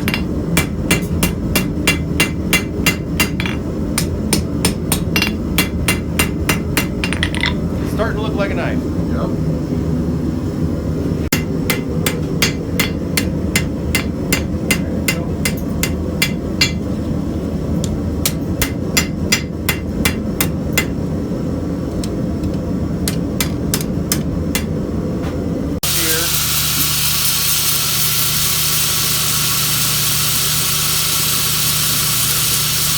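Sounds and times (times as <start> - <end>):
hammer striking steel on anvil: 0.0 - 7.6, 11.3 - 16.9, 18.2 - 21.0, 23.1 - 24.8.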